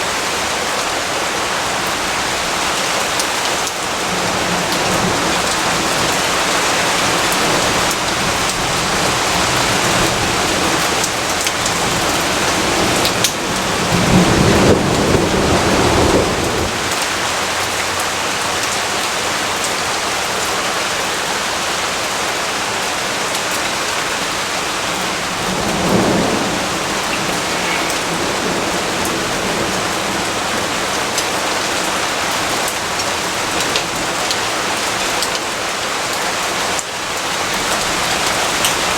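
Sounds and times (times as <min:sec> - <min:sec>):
steady rain falling: 0:00.0 - 0:38.9
thunder rumbling: 0:04.0 - 0:17.8, 0:24.2 - 0:32.8.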